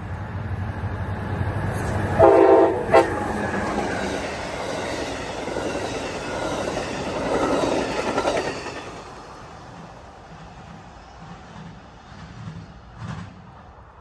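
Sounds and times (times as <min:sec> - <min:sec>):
train wheels clattering on rails: 0:01.7 - 0:13.7
train air horn: 0:02.2 - 0:03.4.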